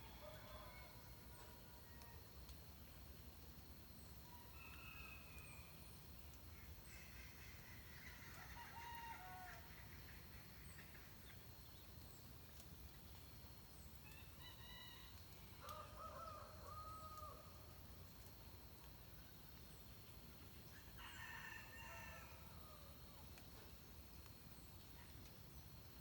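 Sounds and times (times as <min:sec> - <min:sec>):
faint rooster crowing: 0:00.0 - 0:02.3, 0:04.3 - 0:05.7, 0:08.0 - 0:09.8, 0:14.4 - 0:17.7, 0:20.7 - 0:23.1.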